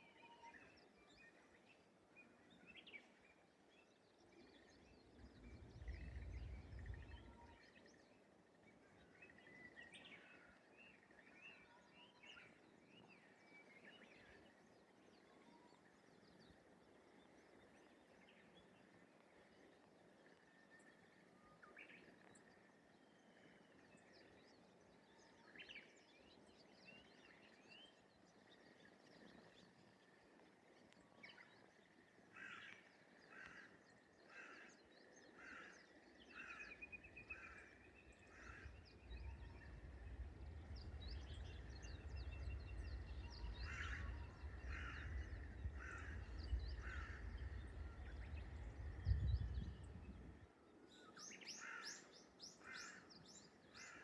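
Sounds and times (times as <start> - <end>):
low rumble: 5.4 - 7.4, 38.1 - 50.5
small birds chirping: 22.0 - 54.0.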